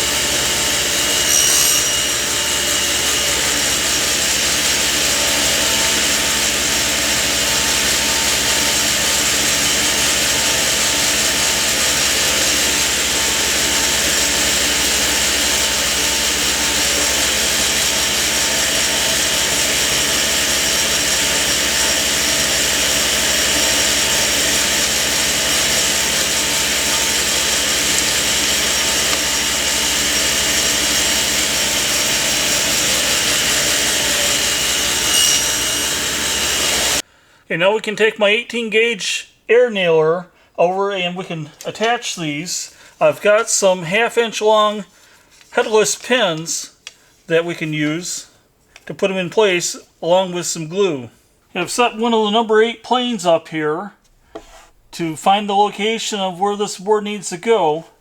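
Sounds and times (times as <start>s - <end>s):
woodworking power tool running: 0.0s - 37.1s.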